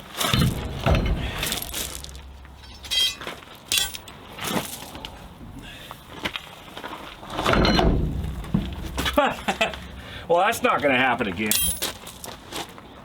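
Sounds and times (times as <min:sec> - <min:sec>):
metal clatter: 0:00.1 - 0:04.9, 0:11.5 - 0:12.3
metallic clinks of hand tools: 0:02.6 - 0:04.1, 0:11.5 - 0:12.0.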